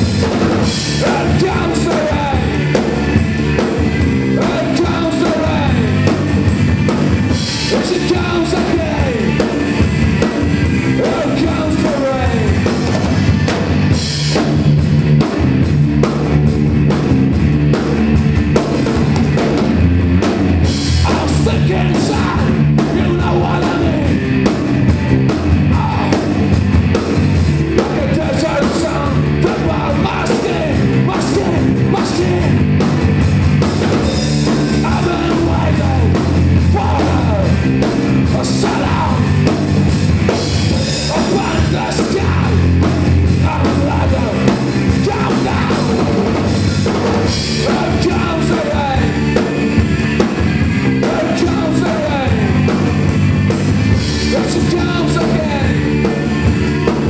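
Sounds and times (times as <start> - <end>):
rock band playing: 0.0 - 57.0
person singing: 0.8 - 3.2, 4.0 - 6.2, 7.3 - 9.5, 10.7 - 13.0, 21.0 - 26.6, 27.7 - 32.8, 34.0 - 39.5, 40.7 - 46.4, 47.2 - 49.6, 50.8 - 52.8, 54.1 - 57.0.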